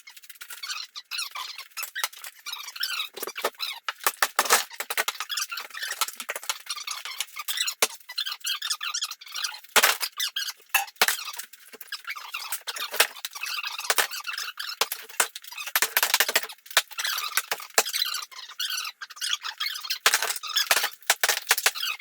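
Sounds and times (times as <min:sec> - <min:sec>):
tile scraping and crackling: 0:01.7 - 0:08.0, 0:09.8 - 0:18.0, 0:20.0 - 0:21.9.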